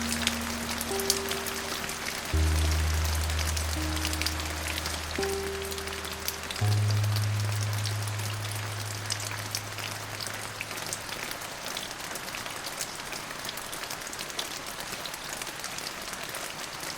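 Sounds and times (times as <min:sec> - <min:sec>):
low held music note: 0:00.0 - 0:10.9
rain falling on a surface: 0:00.0 - 0:16.9.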